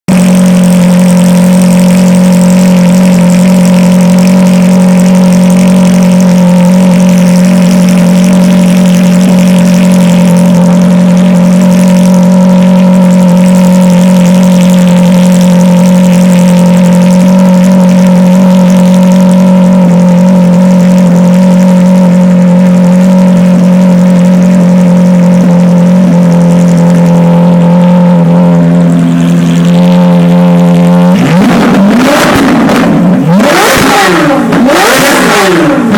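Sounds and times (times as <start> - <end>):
engine held at steady rev: 0.0 - 35.9.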